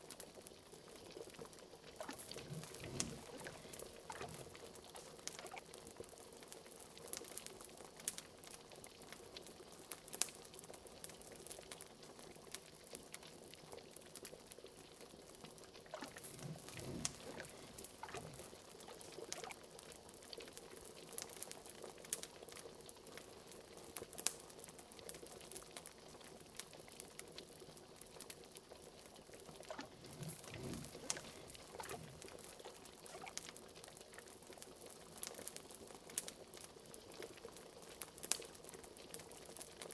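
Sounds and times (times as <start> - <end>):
liquid boiling in a pot: 0.0 - 39.9
fire crackling: 1.9 - 5.6, 15.9 - 21.3, 29.3 - 33.7.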